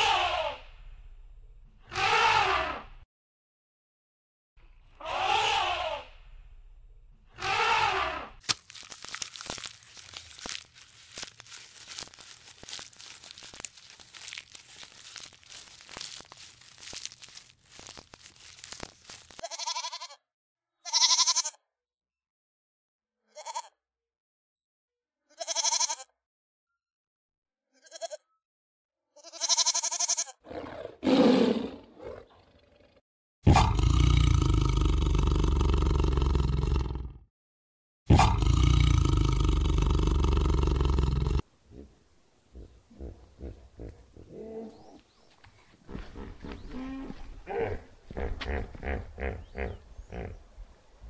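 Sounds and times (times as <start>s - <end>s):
giraffes chewing leafy branches: 8.4s - 19.4s
goats bleating: 18.2s - 20.1s, 25.4s - 26.0s, 29.2s - 30.3s
tiger roaring: 30.4s - 37.2s, 38.1s - 42.0s.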